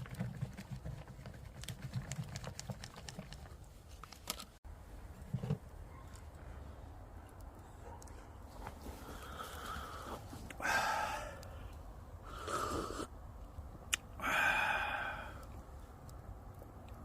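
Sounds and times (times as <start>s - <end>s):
breathy exhalations: 8.9s - 13.1s, 14.2s - 15.5s.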